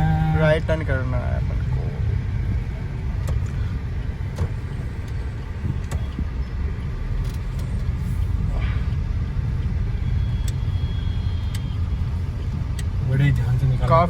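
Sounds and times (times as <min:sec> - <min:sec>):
road and engine rumble: 0:00.0 - 0:14.0
faint clicks: 0:11.4 - 0:11.8.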